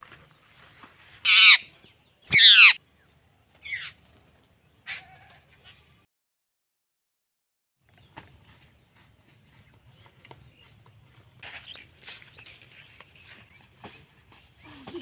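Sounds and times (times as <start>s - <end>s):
bird squawking: 1.2s - 1.7s, 2.3s - 2.8s, 3.6s - 4.0s.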